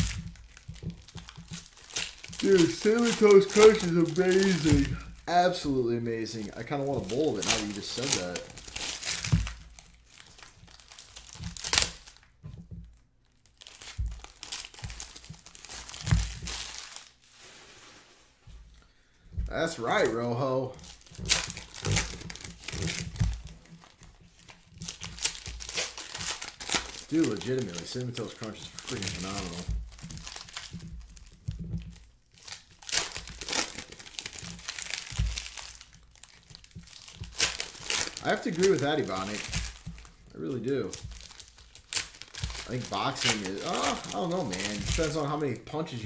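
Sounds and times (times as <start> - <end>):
card pack wrappers tearing and crinkling: 0.0 - 12.4, 13.3 - 17.5, 19.5 - 46.0.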